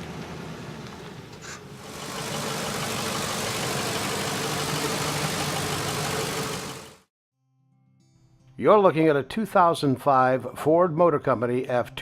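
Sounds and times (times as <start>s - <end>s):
petrol engine idling: 0.0s - 7.1s.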